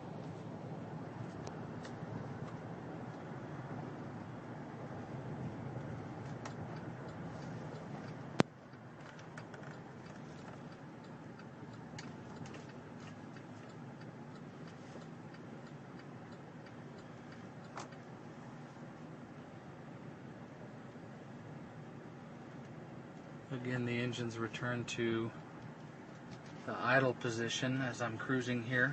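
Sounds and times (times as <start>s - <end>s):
vehicle cabin road noise: 0.0s - 28.9s
faint ticks: 5.8s - 18.1s.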